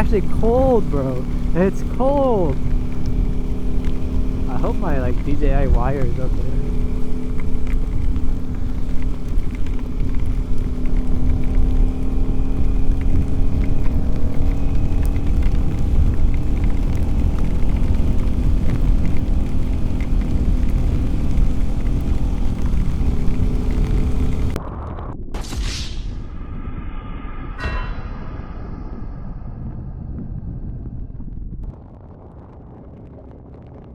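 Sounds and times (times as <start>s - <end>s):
motorcycle engine cruising: 0.0s - 24.6s
wind rumble on microphone: 0.0s - 25.2s, 26.8s - 33.9s.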